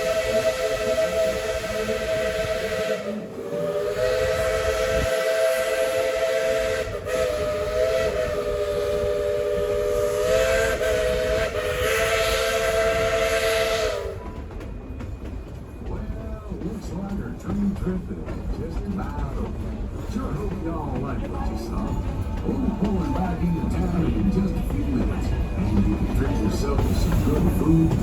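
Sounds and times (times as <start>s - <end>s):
steam locomotive chime whistle: 0.0s - 14.4s.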